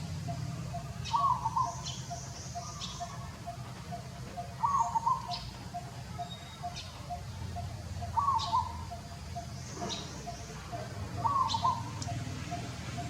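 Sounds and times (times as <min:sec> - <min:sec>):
wavering animal call: 0:00.0 - 0:13.0.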